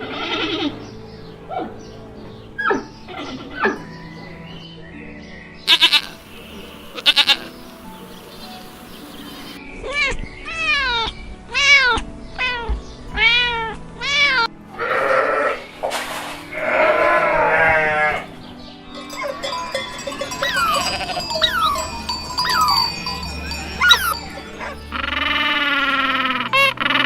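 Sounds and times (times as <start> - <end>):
high downward-sweeping chirps: 18.9 - 25.3
animal calls rising and falling: 20.3 - 24.2.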